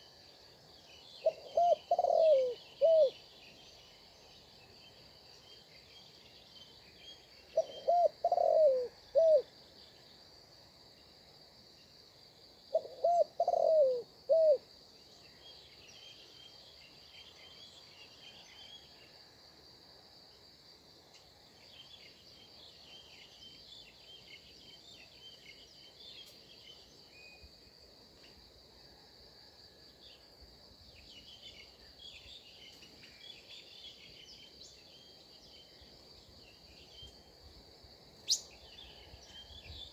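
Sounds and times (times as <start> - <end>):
small birds chirping: 0.7 - 10.1, 38.2 - 39.9
dove cooing: 1.2 - 3.2, 7.5 - 9.5, 12.7 - 14.6.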